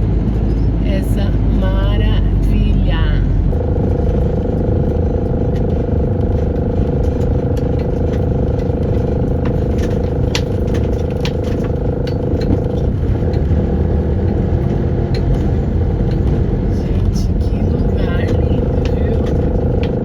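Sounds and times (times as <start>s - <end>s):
road and wind rumble: 0.0s - 20.0s
steady hum: 0.0s - 20.0s
clicks and crackles: 3.6s - 16.5s.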